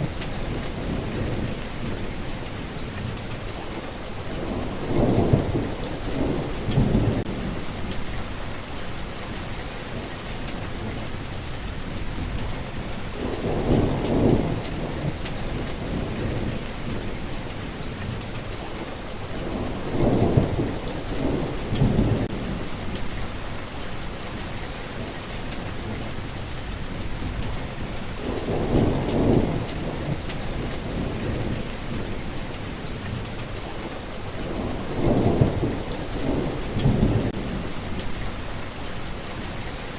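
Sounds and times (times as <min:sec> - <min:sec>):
low rolls of thunder: 0:00.0 - 0:23.6, 0:24.2 - 0:39.7
heavy rain: 0:00.0 - 0:39.9.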